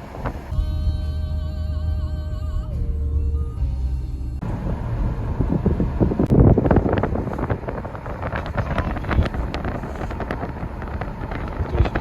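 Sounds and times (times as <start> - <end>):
wind buffeting microphone: 0.0 - 0.6, 4.4 - 12.0.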